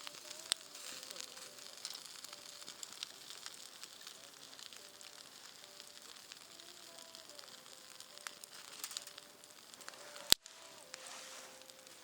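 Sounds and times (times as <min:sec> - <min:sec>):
campfire crackling and hissing: 0:00.0 - 0:12.0
sharp loud snap of fire: 0:00.0 - 0:12.0.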